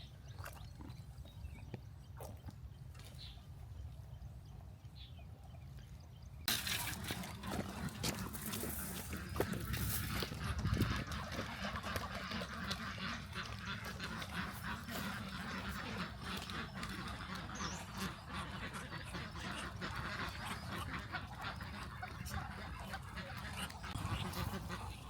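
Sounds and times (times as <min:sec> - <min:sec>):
ducks calling: 0:06.5 - 0:25.0.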